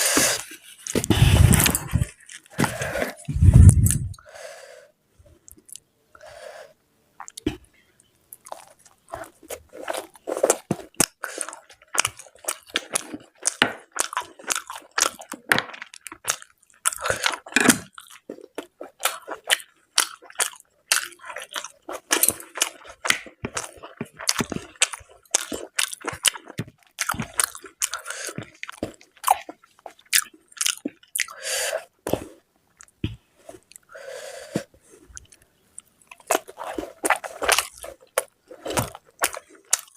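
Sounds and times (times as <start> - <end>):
wet chewing and mouth smacks: 8.4 - 31.4.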